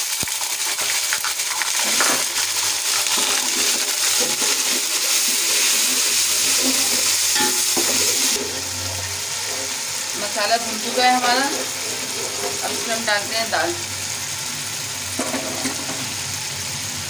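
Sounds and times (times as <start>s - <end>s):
paste sizzling in hot oil: 0.0s - 17.0s
spoon scraping a pot: 6.4s - 8.6s, 11.3s - 13.0s.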